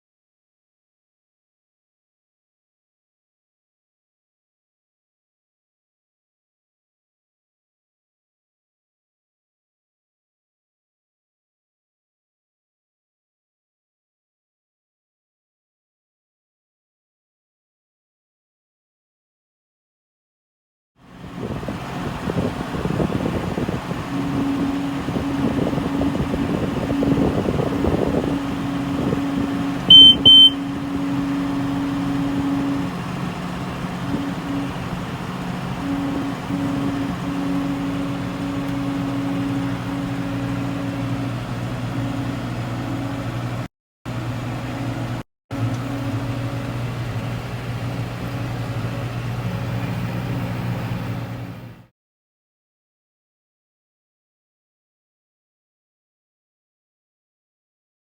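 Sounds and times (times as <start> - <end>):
engine humming: 21.1 - 51.8
double electronic beep: 24.5 - 33.0.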